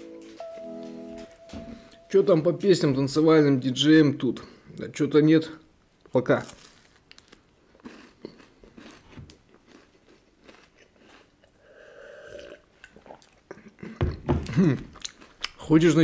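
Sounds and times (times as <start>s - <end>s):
chewing wafer bar: 6.6s - 11.6s
swallowing drink: 11.4s - 14.8s.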